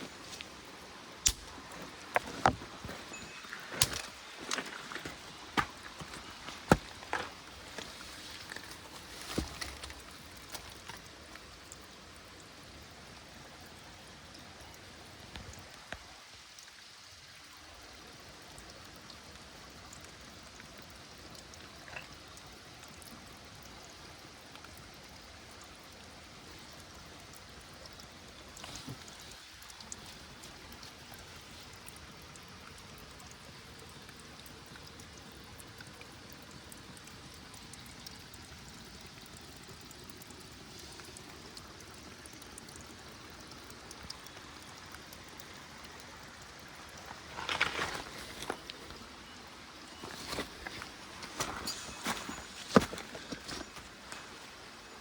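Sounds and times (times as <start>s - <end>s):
small stream running: 0.0s - 55.0s.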